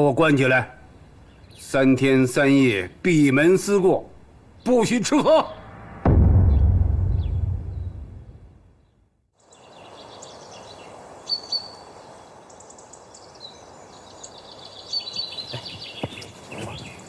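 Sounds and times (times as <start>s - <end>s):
small birds chirping: 1.2s - 3.7s, 4.4s - 5.0s, 8.8s - 17.0s
background hiss: 9.4s - 17.0s.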